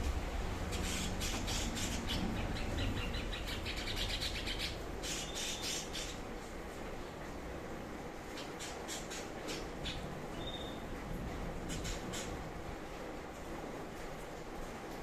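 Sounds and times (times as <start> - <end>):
steady low hum: 0.0 - 14.9
songbird singing: 0.8 - 6.2, 8.4 - 10.8.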